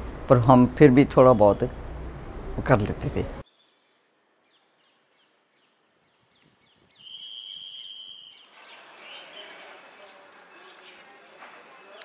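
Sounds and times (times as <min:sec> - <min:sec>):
outdoor background noise: 0:00.0 - 0:12.0
small birds chirping: 0:03.4 - 0:12.0
high whistle-like tone: 0:07.0 - 0:08.5.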